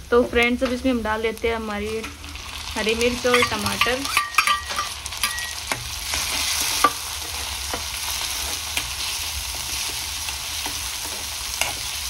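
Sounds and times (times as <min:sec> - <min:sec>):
vegetables sizzling in hot oil: 0:00.0 - 0:12.0
utensil clinking against pan: 0:03.3 - 0:05.6.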